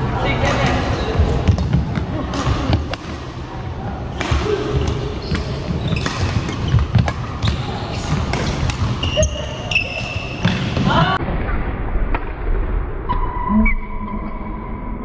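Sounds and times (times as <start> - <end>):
voices in hall: 0.0 - 11.3
racket hitting shuttlecock: 1.5 - 3.3, 4.0 - 10.9
shoe squeak: 5.2 - 10.7.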